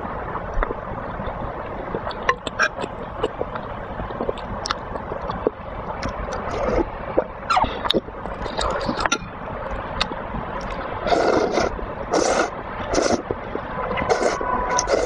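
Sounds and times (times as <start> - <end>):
steady hiss: 0.0 - 15.0
wet chewing and slurping: 2.0 - 9.2, 10.0 - 13.4, 14.0 - 15.0
mouth clicks and smacks: 2.0 - 13.4.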